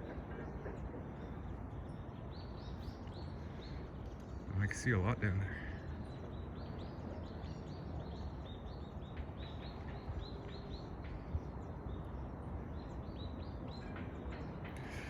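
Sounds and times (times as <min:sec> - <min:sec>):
steady low background noise: 0:00.0 - 0:15.0.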